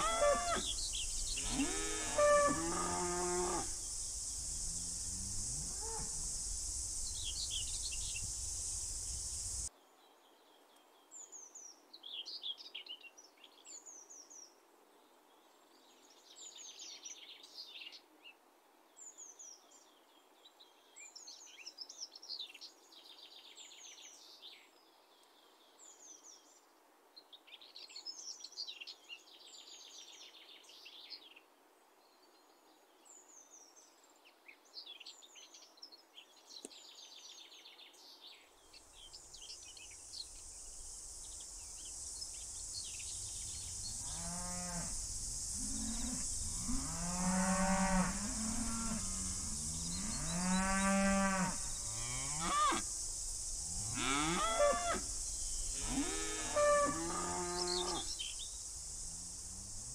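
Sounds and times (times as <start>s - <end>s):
cow mooing: 0.0s - 0.7s, 1.4s - 3.8s, 53.9s - 55.0s
small birds singing: 0.0s - 1.8s, 6.0s - 14.5s, 27.3s - 59.9s
high insect buzz: 0.0s - 9.7s, 38.9s - 59.9s.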